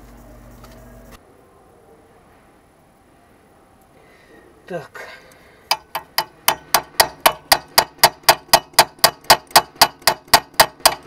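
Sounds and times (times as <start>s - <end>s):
wrench tapping metal: 5.7s - 11.0s.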